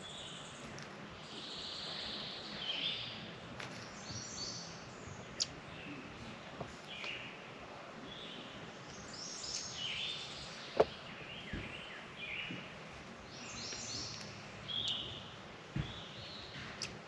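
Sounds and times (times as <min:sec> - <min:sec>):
outdoor background noise: 0:00.0 - 0:17.0
birds chirping and singing: 0:08.0 - 0:12.7, 0:13.3 - 0:17.0.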